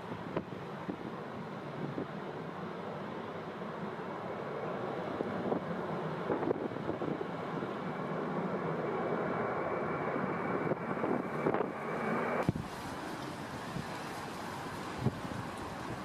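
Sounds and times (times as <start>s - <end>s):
wind buffeting microphone: 0.1s - 2.2s, 5.0s - 8.0s, 10.0s - 16.0s.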